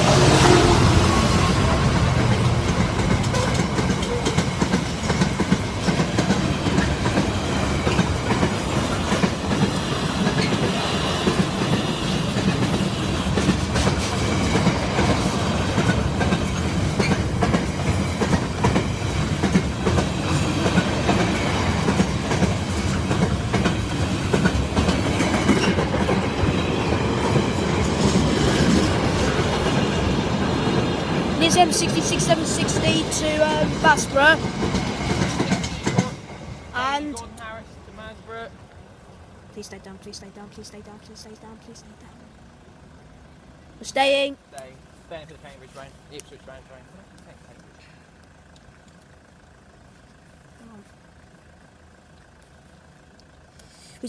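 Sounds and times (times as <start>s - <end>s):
train wheels clickety-clack: 0.0s - 36.6s
train rumble: 0.0s - 54.0s.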